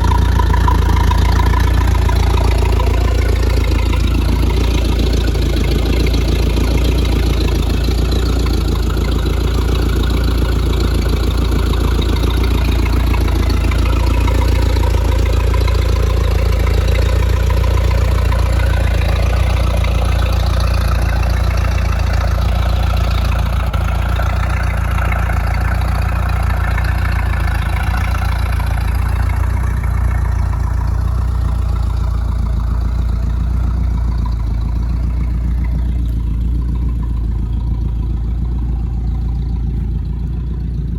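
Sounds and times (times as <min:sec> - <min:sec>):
vehicle engine rumbling: 0:00.0 - 0:40.9.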